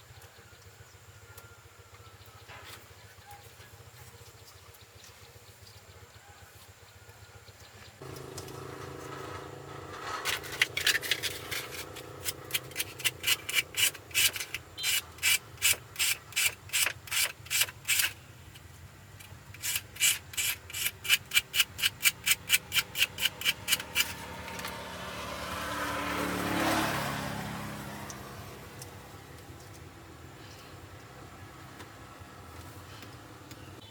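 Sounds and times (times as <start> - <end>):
rhythmic scraping strokes: 8.0 - 24.8
motor humming: 8.0 - 25.1.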